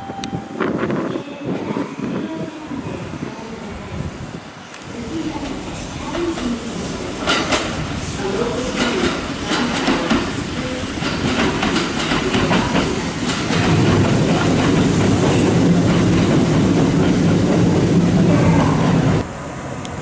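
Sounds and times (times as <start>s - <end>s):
train rumble with low hum: 0.0s - 20.0s
train wheels clacking over joints: 6.1s - 18.2s.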